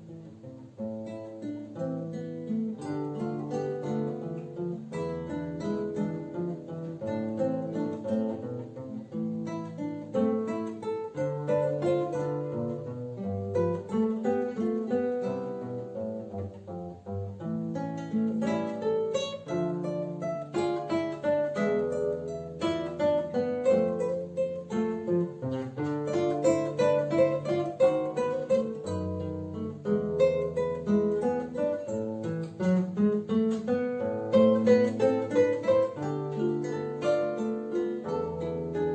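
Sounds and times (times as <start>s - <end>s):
classical guitar duet: 0.0s - 38.9s.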